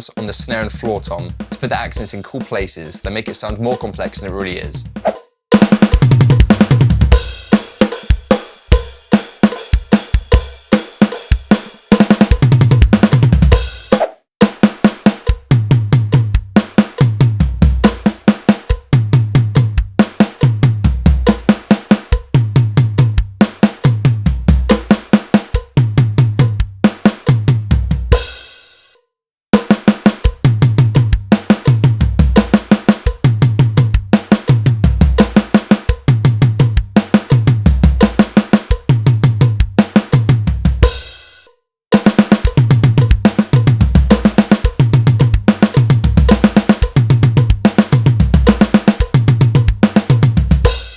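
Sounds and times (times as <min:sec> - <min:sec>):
drum kit playing: 0:00.0 - 0:28.9, 0:29.6 - 0:50.9.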